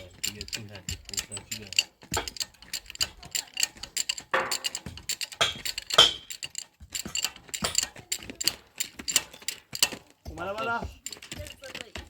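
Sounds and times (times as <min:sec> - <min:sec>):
light clicks and knocks: 0:00.0 - 0:12.0
ringing knock: 0:04.3 - 0:08.0.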